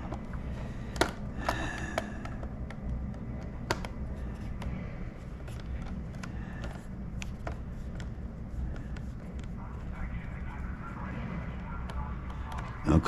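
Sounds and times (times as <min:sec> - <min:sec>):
low hum of game audio: 0:00.0 - 0:13.0
plastic clicks and taps: 0:00.9 - 0:04.0.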